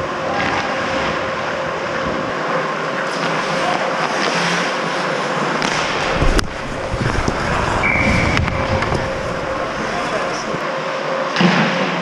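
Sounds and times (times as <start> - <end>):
sharp crack: 5.6 - 10.5
rink noise: 5.6 - 10.6.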